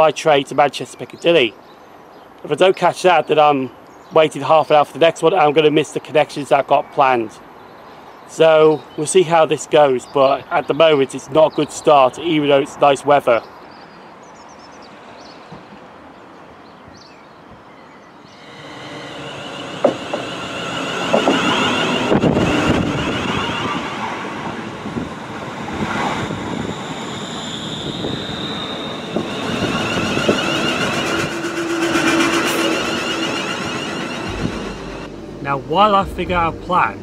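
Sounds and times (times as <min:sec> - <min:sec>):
high whine of train: 0:13.6 - 0:37.0
train wheels clicking over joints: 0:19.6 - 0:22.8, 0:29.2 - 0:35.1.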